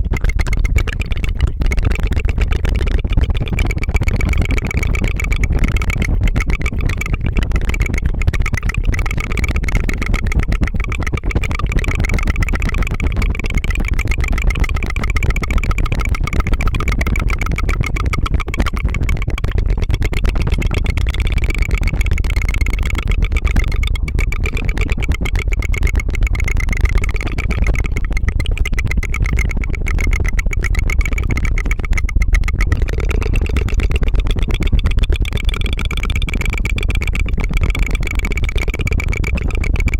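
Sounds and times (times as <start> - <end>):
tongue fluttering trill: 0.0 - 39.9.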